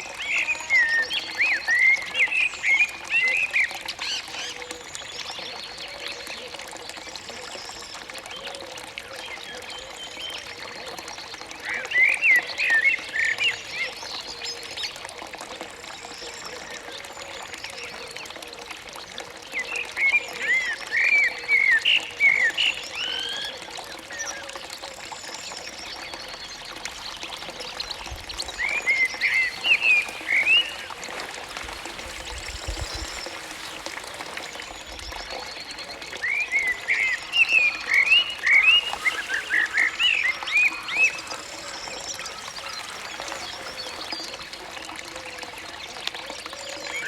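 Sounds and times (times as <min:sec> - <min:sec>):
water trickling: 0:00.0 - 0:47.0
bird warbling song: 0:19.6 - 0:47.0.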